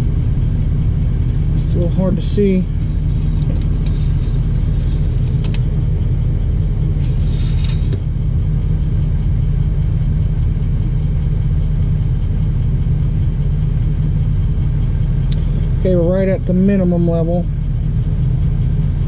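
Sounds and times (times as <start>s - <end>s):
vehicle engine idling: 0.0s - 19.0s
brief rustle or scrape: 2.8s - 5.6s, 7.0s - 8.0s.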